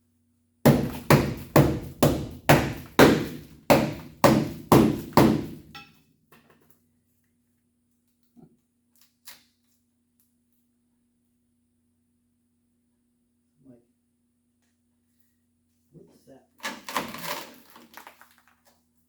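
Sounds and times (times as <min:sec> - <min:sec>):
hammer blows on metal: 0:00.7 - 0:05.9.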